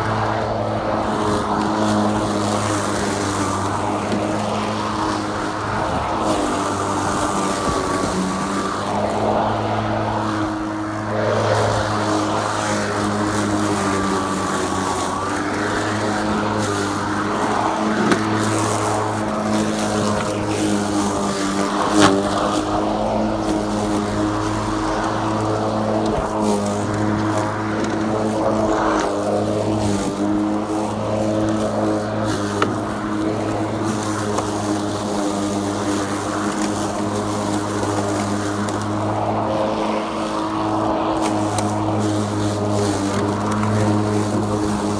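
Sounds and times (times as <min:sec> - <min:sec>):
lawn mower motor humming: 0:00.0 - 0:44.9.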